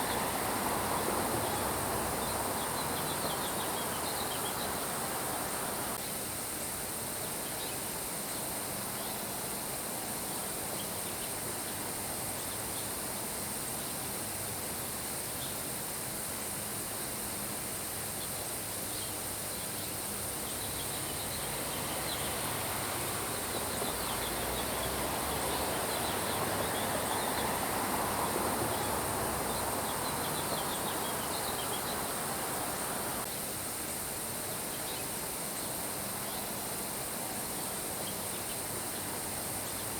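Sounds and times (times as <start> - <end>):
crickets trilling: 0.0 - 7.8, 10.2 - 39.9
rain hiss: 0.0 - 39.9
birds chirping: 20.4 - 33.2.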